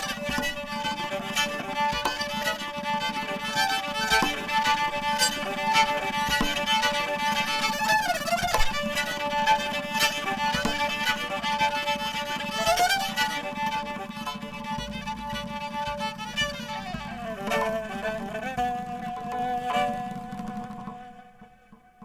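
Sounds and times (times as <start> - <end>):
violin playing held notes: 0.0 - 21.7.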